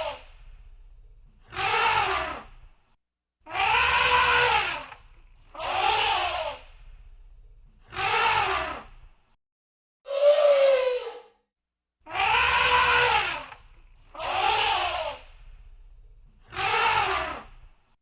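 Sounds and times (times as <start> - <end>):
elephant trumpeting: 3.5 - 4.9, 12.1 - 13.5.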